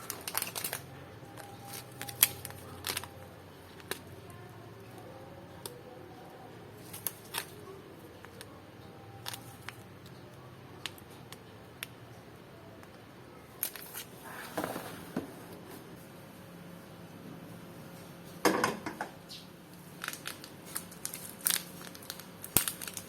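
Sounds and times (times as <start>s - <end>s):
small objects clicking and knocking: 0.0s - 3.1s, 20.0s - 23.0s
rustling scrape: 13.7s - 15.9s.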